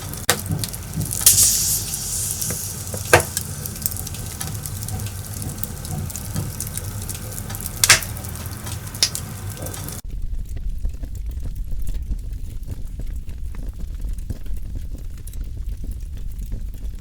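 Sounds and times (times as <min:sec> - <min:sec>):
fire crackles: 0:00.0 - 0:10.0
log fire hissing and rumbling: 0:00.0 - 0:17.0
sharp pops of fire: 0:00.2 - 0:10.0.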